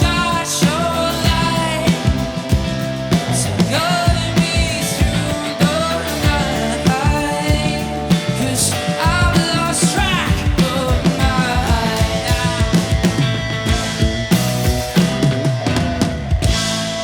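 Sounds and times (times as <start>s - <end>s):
person singing: 0.0s - 2.4s, 3.5s - 14.4s
drums steady beat: 0.0s - 17.0s
live rock band playing: 0.0s - 17.0s.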